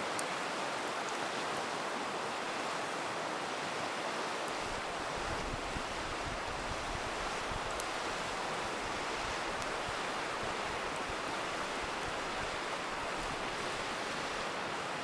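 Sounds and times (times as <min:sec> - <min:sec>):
river rushing: 0:00.0 - 0:15.0
campfire crackling pops: 0:08.9 - 0:12.3.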